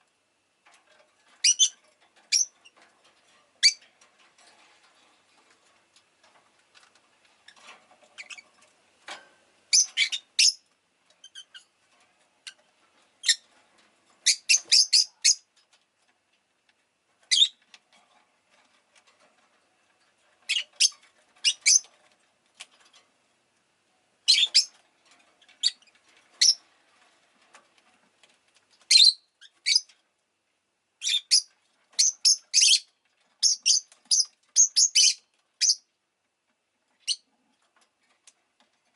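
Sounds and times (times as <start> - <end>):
faint clicks and rustling: 0.0 - 9.8, 10.6 - 14.3, 15.5 - 30.6, 35.2 - 38.9
lovebird chirping: 1.4 - 1.7, 14.2 - 15.4, 31.0 - 35.8.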